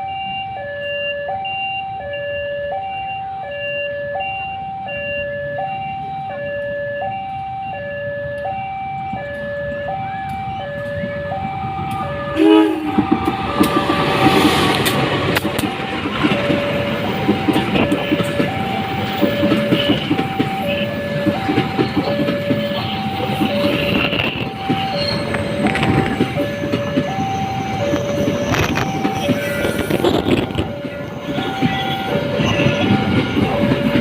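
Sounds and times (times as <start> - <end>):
two-tone level-crossing alarm: 0.0 - 34.0
diesel locomotive engine rumble: 4.1 - 34.0
train wheel clatter: 11.8 - 34.0.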